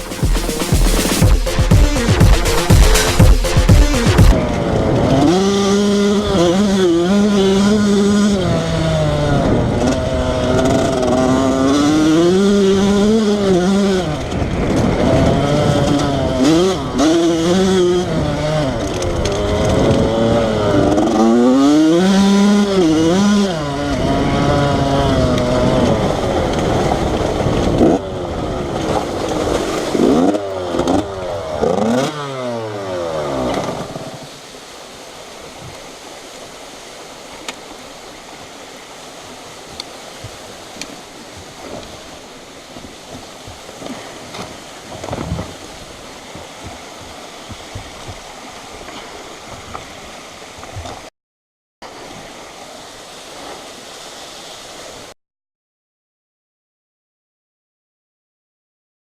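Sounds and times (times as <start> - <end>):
dirt bike engine revving: 0.0 - 34.3.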